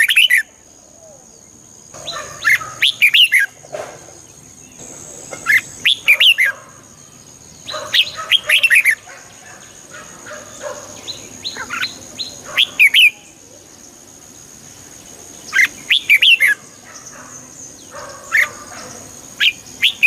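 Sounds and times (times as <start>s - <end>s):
bird singing whistled notes: 0.0s - 0.5s, 1.4s - 3.6s, 5.5s - 6.6s, 11.0s - 13.9s, 15.4s - 18.5s, 19.4s - 20.0s.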